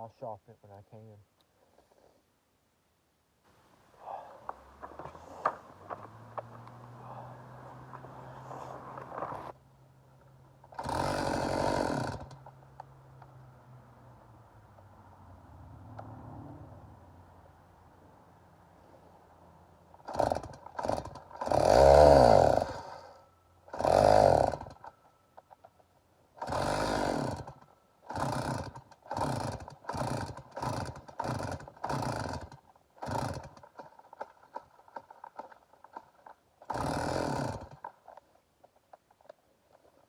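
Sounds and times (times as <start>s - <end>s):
chainsaw engine revving: 4.0s - 9.6s, 10.6s - 12.5s, 19.9s - 25.0s, 26.3s - 38.2s.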